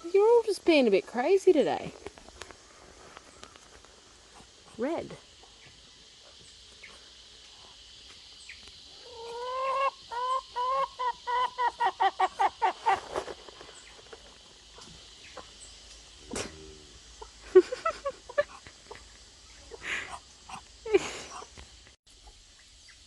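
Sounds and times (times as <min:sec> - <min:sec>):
chicken cackling: 0:08.9 - 0:13.2.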